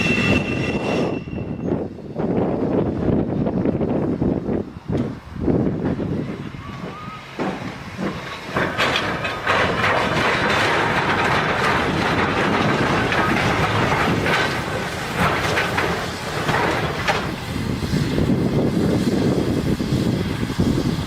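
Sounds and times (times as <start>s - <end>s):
fast train passing: 0.0s - 21.0s.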